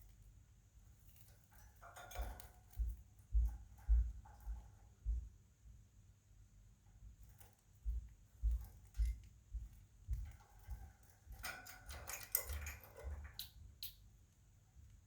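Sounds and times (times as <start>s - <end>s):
soft low thumps: 2.6s - 5.8s, 7.8s - 11.4s.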